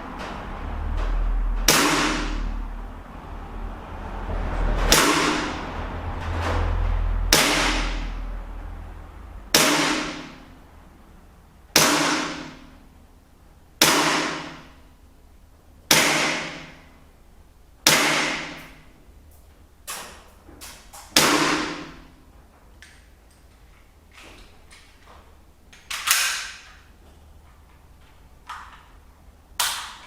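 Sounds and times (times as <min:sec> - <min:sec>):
airsoft pistol shots: 0:01.7 - 0:02.5, 0:07.3 - 0:08.2, 0:09.5 - 0:10.4, 0:11.8 - 0:12.7, 0:13.8 - 0:14.7, 0:15.9 - 0:16.8, 0:17.8 - 0:18.7, 0:21.1 - 0:22.0.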